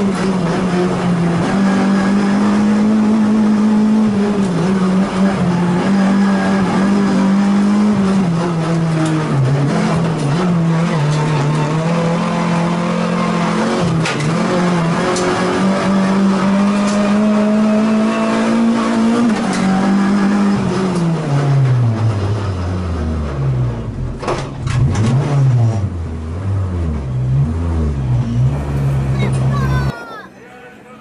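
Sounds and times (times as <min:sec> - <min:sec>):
race car engine revving: 0:00.0 - 0:29.9.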